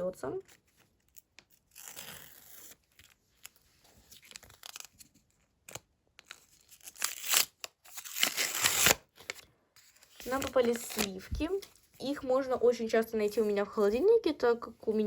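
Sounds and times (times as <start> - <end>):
paper tearing: 1.5 - 3.2, 6.3 - 9.4
paper rustling and crinkling: 2.5 - 12.3.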